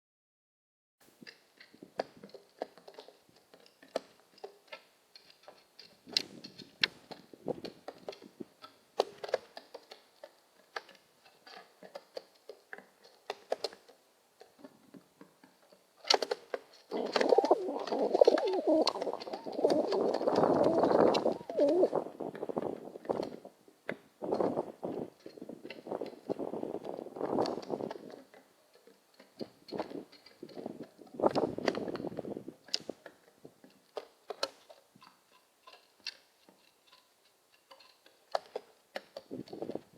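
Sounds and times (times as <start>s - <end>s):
pigeon cooing: 16.9s - 22.4s.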